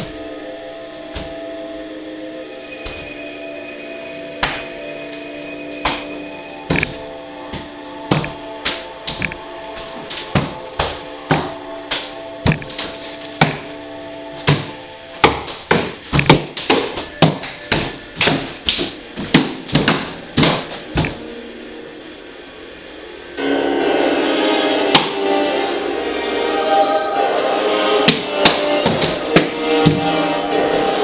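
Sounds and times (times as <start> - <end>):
held note: 23.4 - 31.0.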